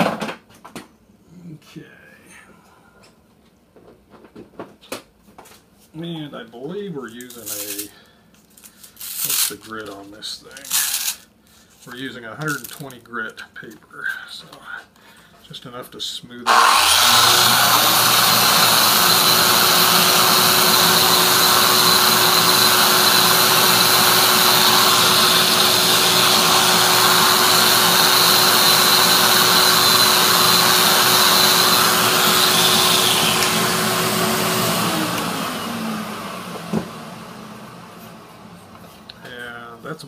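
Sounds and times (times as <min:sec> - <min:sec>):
electric sander running: 0:16.5 - 0:38.4.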